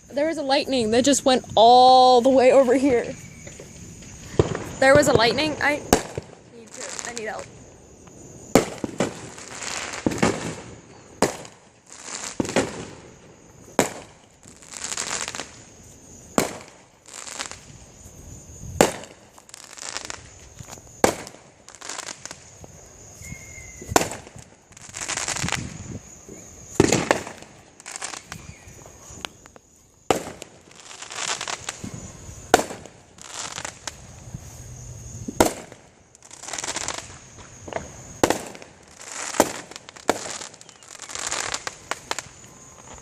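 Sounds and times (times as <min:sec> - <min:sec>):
fireworks bangs: 0:00.0 - 0:43.0
fireworks crackling: 0:00.0 - 0:43.0.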